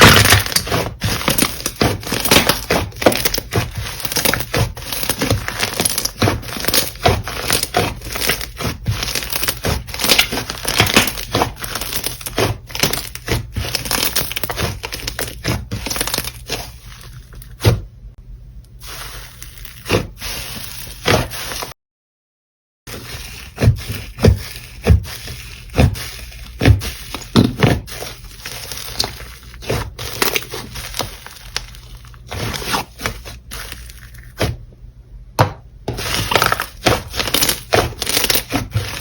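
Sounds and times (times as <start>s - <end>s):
slime squished by hand: 36.0s - 39.0s.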